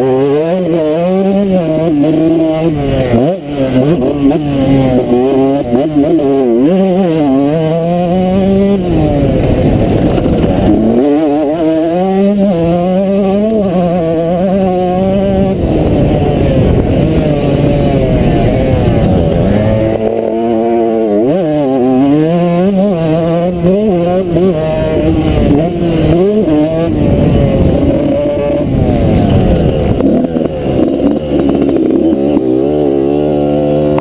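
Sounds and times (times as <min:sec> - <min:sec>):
two-stroke engine revving hard: 0:00.0 - 0:34.0.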